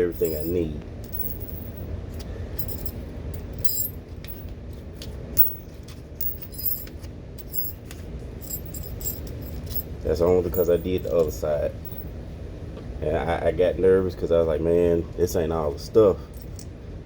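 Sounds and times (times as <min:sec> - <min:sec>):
metal hardware clinking: 0:00.0 - 0:01.9, 0:02.6 - 0:04.5, 0:05.4 - 0:07.8, 0:08.4 - 0:12.1.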